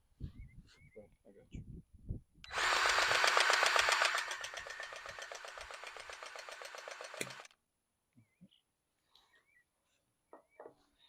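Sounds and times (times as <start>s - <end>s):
grease gun pump pulsing: 2.5s - 7.5s.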